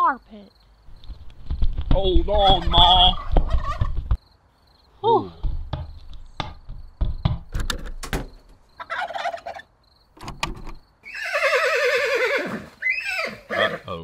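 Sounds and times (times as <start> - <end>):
turkey gobbling: 2.6 - 3.9, 8.8 - 9.7
sharp clicks and knocks: 5.7 - 8.6, 10.2 - 10.8.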